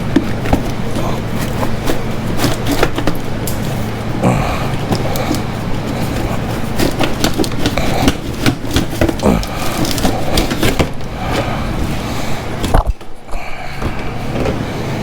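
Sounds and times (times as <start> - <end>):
knocks taps and scraping: 0.0 - 3.7, 4.8 - 11.5
low steady hum: 0.0 - 15.0.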